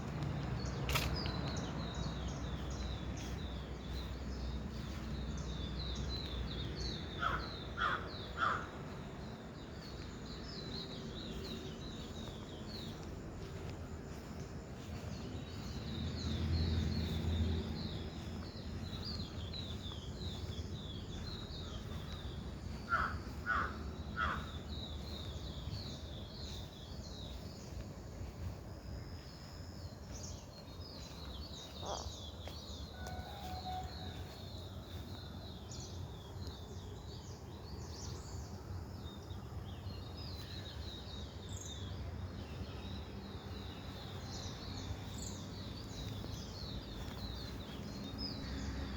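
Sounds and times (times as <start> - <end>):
small birds chirping: 0.0 - 48.9
crow cawing: 7.2 - 8.7, 22.9 - 24.6.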